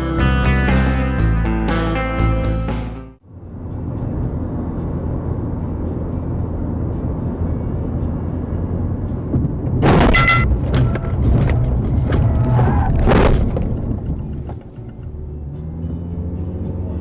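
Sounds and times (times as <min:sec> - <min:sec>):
car engine and road rumble: 0:00.0 - 0:17.0
loud crash: 0:09.8 - 0:11.2.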